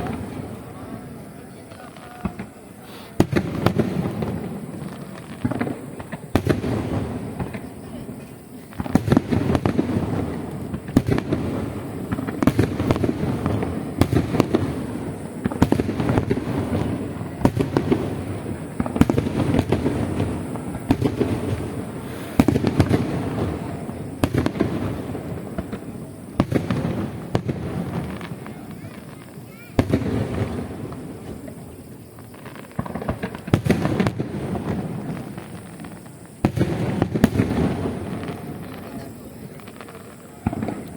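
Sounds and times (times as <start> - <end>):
fireworks booms: 0.0 - 40.9
fireworks bursting and crackling: 0.0 - 40.9.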